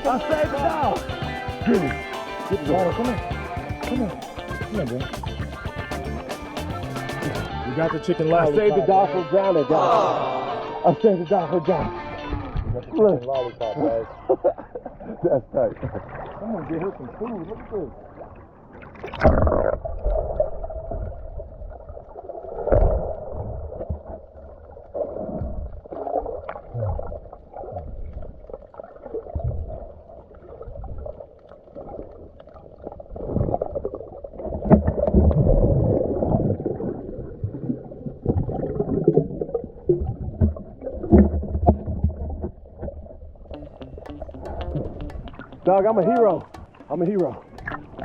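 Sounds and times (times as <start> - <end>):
water sloshing and gurgling: 13.8 - 48.0.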